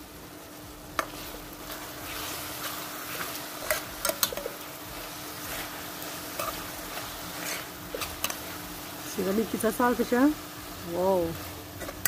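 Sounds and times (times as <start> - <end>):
fish sizzling in hot oil: 0.0 - 12.0
utensil clicking against pot: 3.6 - 4.5.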